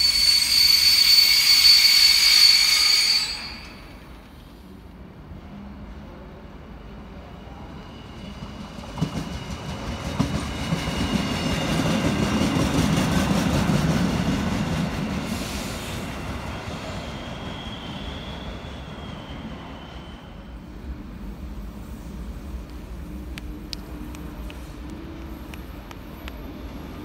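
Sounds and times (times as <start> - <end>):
high-pitched wheel squeal: 0.0 - 4.0, 16.9 - 20.5
passing train rumble: 0.0 - 27.0.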